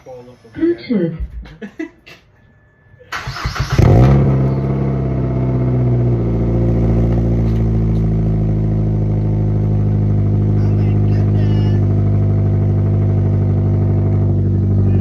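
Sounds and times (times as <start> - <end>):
car engine idling: 3.1 - 15.0
car engine starting: 3.1 - 15.0.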